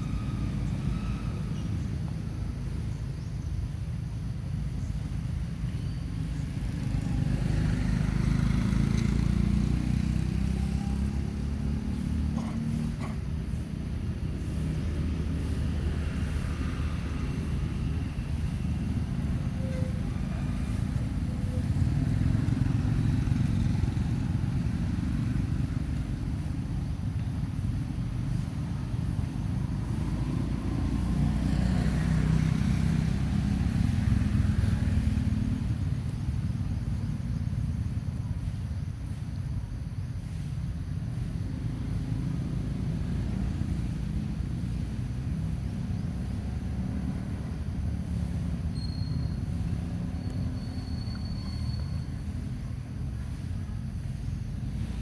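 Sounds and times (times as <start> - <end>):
traffic rumble: 0.0 - 55.0.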